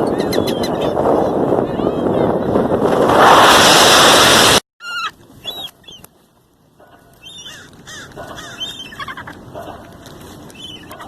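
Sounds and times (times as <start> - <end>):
loud rushing noise: 2.5 - 4.6
seagulls calling: 7.2 - 9.8, 10.5 - 11.0.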